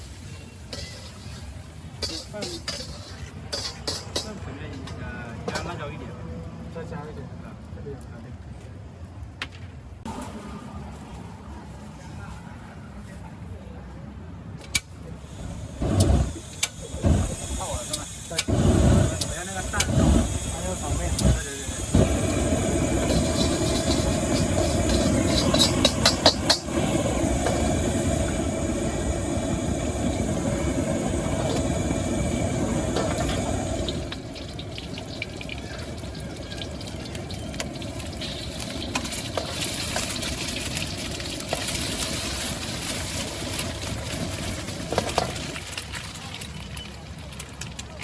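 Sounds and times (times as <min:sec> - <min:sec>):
food sizzling: 0:00.0 - 0:04.4, 0:15.6 - 0:48.0
gas burner roaring: 0:00.0 - 0:06.0, 0:14.6 - 0:46.3
spatula clanking on wok: 0:00.6 - 0:05.6.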